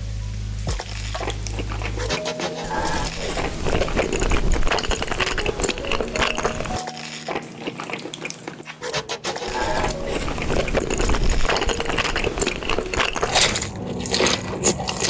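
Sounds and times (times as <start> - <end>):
low hum: 0.0 - 6.8
chewing: 0.7 - 15.0.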